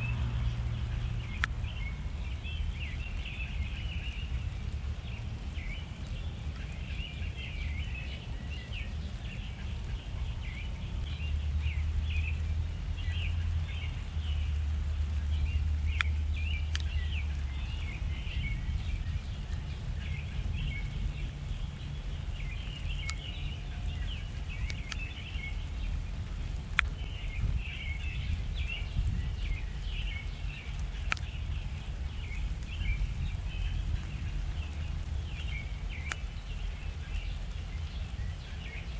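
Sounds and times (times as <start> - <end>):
small birds chirping: 0.0 - 38.9
steady low rumble: 0.0 - 38.9
sharp clicks: 1.4 - 1.6, 15.9 - 17.4, 22.7 - 23.3, 24.6 - 25.1, 26.7 - 27.0, 30.7 - 31.4, 34.0 - 36.4.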